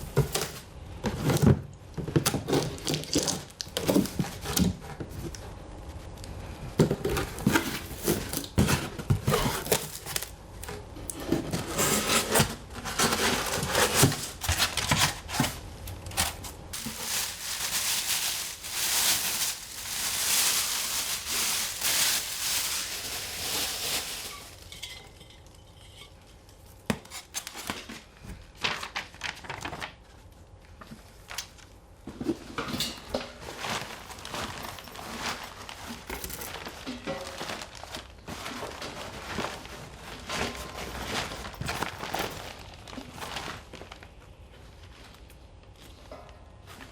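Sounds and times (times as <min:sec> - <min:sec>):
packaging rustling: 0:06.8 - 0:10.4, 0:11.4 - 0:24.8.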